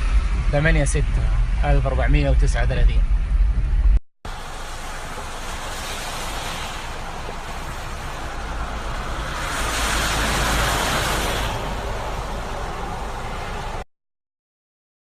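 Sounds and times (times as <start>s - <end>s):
heavy rain pouring: 4.3s - 13.8s.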